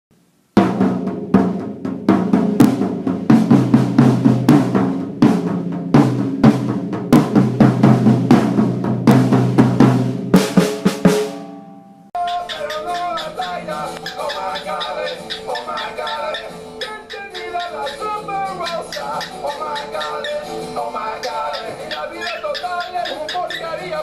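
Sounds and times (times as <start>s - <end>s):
drum kit hits: 0.6s - 11.8s
rock music: 12.2s - 23.9s.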